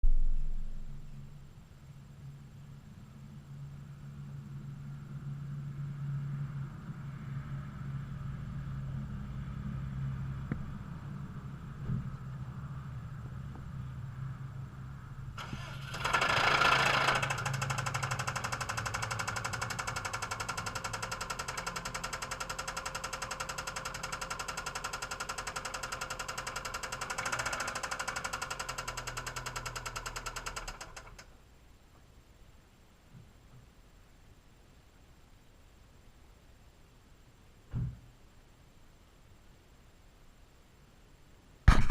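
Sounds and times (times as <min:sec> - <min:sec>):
car engine idling with knock: 0:15.4 - 0:31.2, 0:41.7 - 0:41.9.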